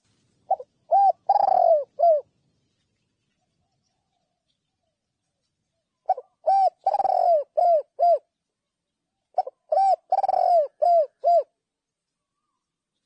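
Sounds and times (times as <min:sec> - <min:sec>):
dove cooing: 0:00.0 - 0:02.3, 0:06.0 - 0:08.3, 0:09.3 - 0:11.6.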